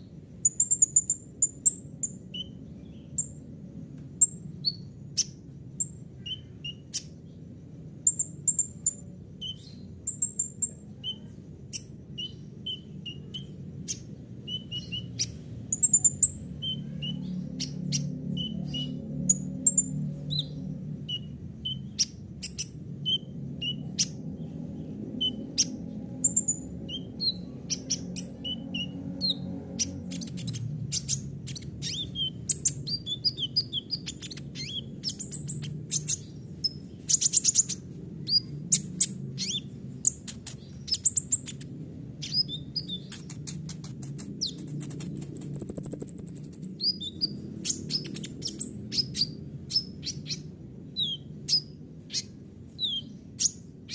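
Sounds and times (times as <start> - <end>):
bird singing chirps and trills: 0.0 - 53.9
steady low hum: 0.0 - 53.9.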